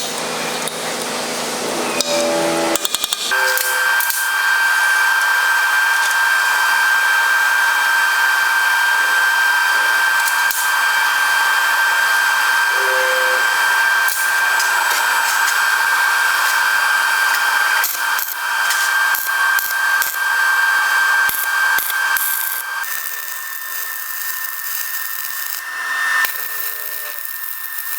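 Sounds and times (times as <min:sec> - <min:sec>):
angle grinder whining: 0:00.2 - 0:27.9.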